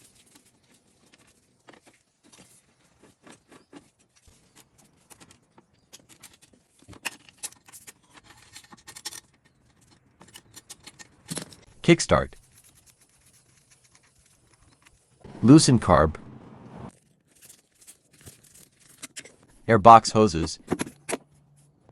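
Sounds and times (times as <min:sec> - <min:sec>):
hand tools clicking and scraping: 0:00.0 - 0:11.8, 0:17.3 - 0:19.5.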